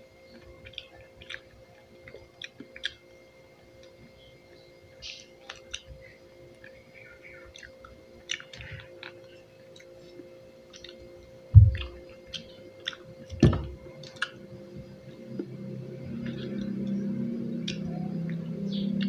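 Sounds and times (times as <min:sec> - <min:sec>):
low steady hum: 0:00.0 - 0:19.0
chewing juicy fruit: 0:00.3 - 0:04.2, 0:05.0 - 0:19.0
dull thumps: 0:11.5 - 0:12.0, 0:13.3 - 0:13.9.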